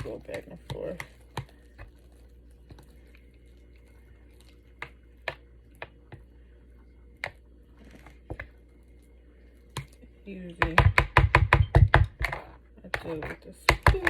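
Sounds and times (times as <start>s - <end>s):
mashed potatoes squishing: 0.0s - 14.0s.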